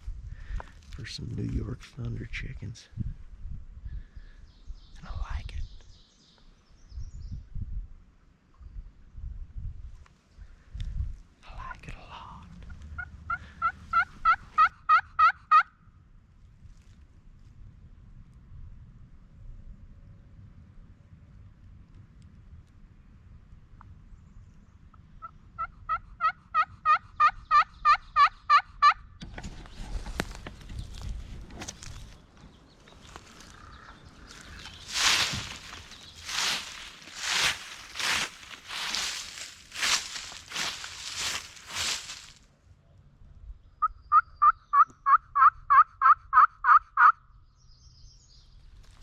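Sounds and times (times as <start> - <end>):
turkey call yelps: 13.0 - 15.7, 25.2 - 29.0, 43.8 - 47.2
rustling through brush: 29.3 - 42.5.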